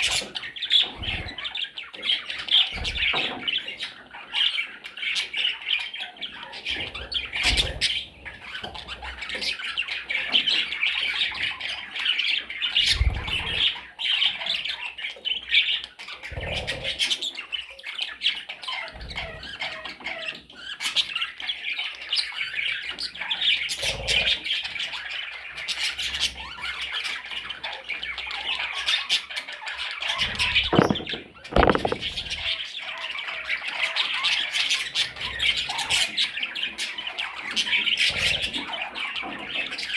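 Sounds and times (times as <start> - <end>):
parrots chattering and squawking: 0.0 - 39.9
short thumps: 30.7 - 32.2.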